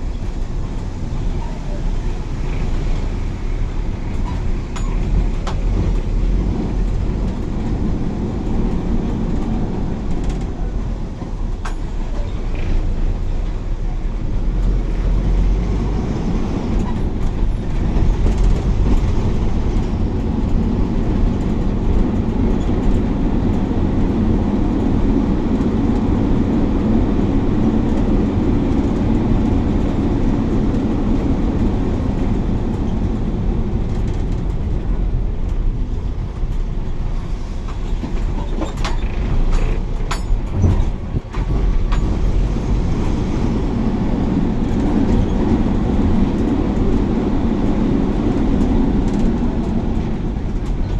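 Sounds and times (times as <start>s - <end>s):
bus engine and road rumble: 0.0s - 50.9s
sharp rattles and knocks: 37.7s - 43.8s.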